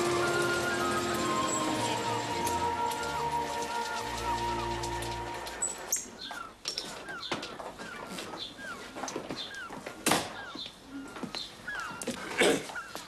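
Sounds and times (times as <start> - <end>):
held music chord: 0.0 - 6.0
small birds chirping: 0.0 - 13.0.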